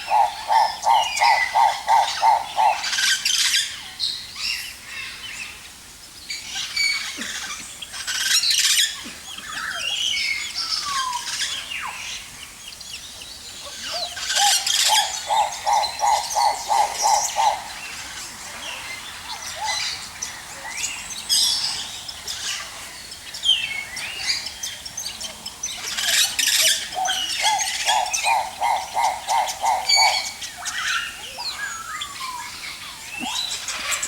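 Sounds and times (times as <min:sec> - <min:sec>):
rapid repeated bird notes: 0:00.0 - 0:03.5, 0:14.0 - 0:18.4, 0:19.0 - 0:34.0
birds chirping and squawking: 0:00.0 - 0:03.9, 0:06.5 - 0:34.0.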